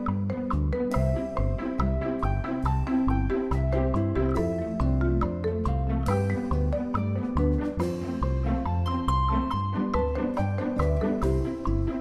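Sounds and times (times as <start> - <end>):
marimba-like mallet melody: 0.0 - 12.0
steady bass line: 0.0 - 12.0.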